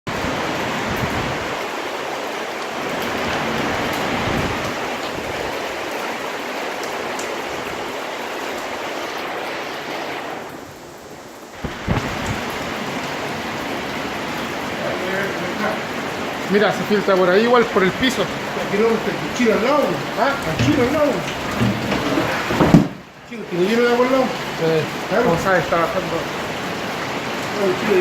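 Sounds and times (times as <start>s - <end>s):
steady rain falling: 0.1s - 28.0s
short thump: 21.5s - 23.0s.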